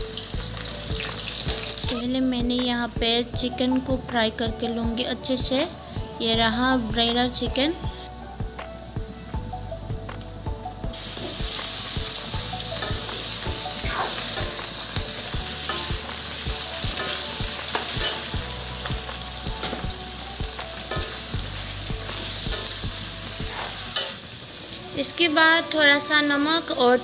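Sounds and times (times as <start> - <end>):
chicken sizzling in pan: 0.0 - 2.0, 10.9 - 27.0
metal ladle scraping pan: 11.0 - 19.9.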